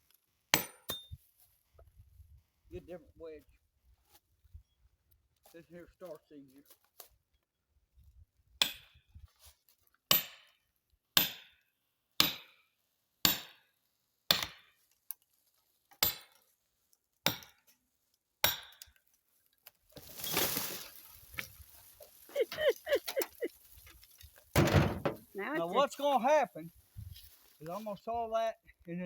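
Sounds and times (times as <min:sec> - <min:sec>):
hammer striking metal wedge: 0:00.6 - 0:01.1, 0:11.2 - 0:11.5, 0:13.3 - 0:13.5, 0:18.4 - 0:18.8
rustling: 0:19.7 - 0:28.0.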